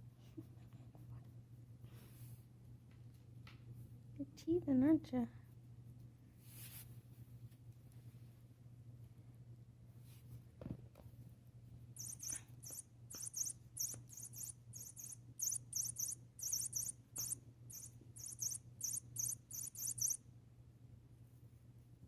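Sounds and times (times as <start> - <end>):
steady low hum: 0.0 - 22.0
short high-pitched squeaks: 12.0 - 20.2.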